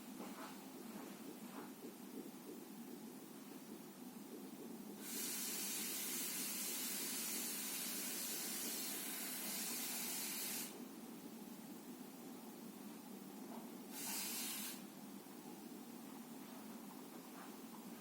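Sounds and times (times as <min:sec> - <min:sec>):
hiss of surf: 0:13.9 - 0:14.9.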